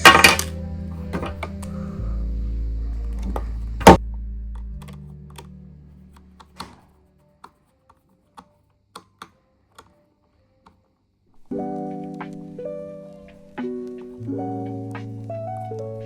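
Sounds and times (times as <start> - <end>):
background music: 0.0 - 16.0
plastic clicks and taps: 6.4 - 10.0.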